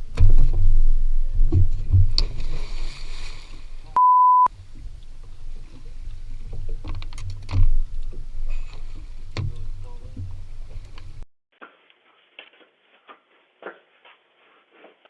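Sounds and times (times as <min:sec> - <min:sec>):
low rumbling background: 0:00.0 - 0:11.2
censor bleep: 0:04.0 - 0:04.5.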